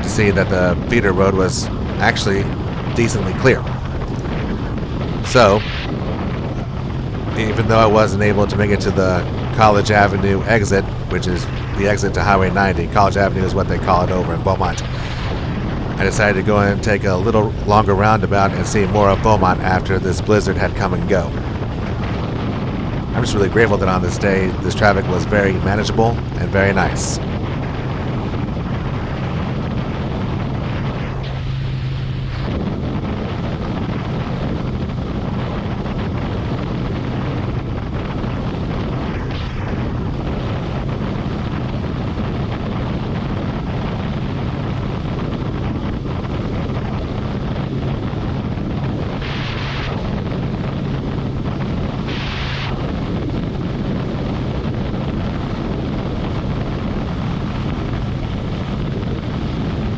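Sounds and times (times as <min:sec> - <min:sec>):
motorcycle engine drone: 0:00.0 - 0:28.2
wind rush on microphone: 0:00.0 - 0:59.9.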